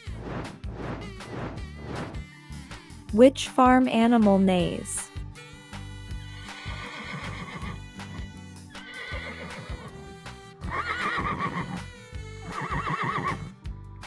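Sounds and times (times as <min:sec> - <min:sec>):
background music: 0:00.0 - 0:14.0
horse neighing: 0:06.5 - 0:07.8, 0:08.8 - 0:09.9, 0:10.7 - 0:11.8, 0:12.6 - 0:13.4.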